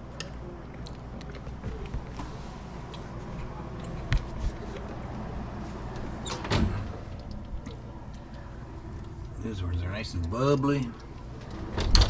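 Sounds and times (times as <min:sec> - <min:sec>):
steady low hum: 0:00.0 - 0:12.0
door creak and clunk: 0:06.2 - 0:07.8, 0:11.4 - 0:12.0.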